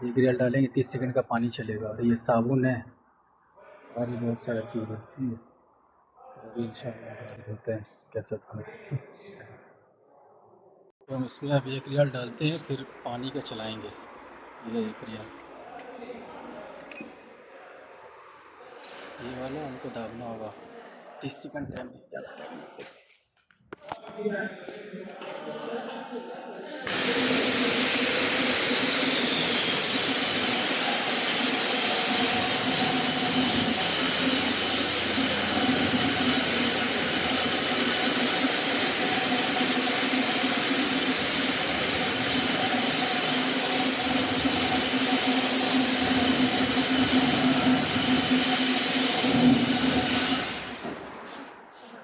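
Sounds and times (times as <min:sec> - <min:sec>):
high-pressure water spraying: 0:26.9 - 0:50.8.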